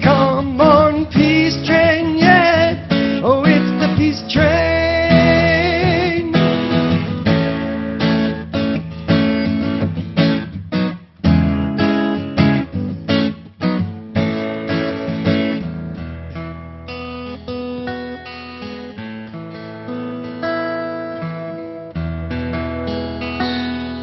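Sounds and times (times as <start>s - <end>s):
man singing wordless notes: 0.0s - 6.9s
strummed acoustic guitar: 0.0s - 24.0s.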